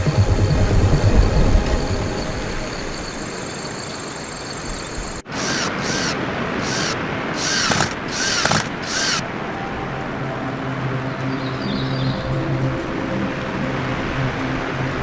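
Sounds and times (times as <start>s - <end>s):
hand saw cutting wood: 5.3s - 9.2s.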